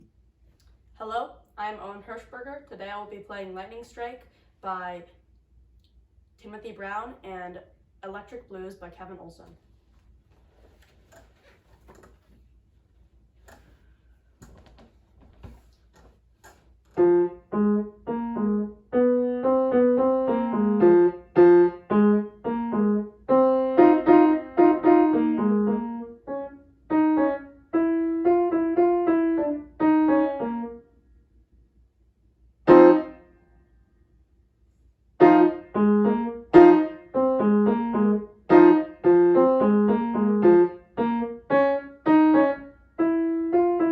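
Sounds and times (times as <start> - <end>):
piano playing: 17.0 - 30.8, 32.7 - 33.2, 35.2 - 43.9.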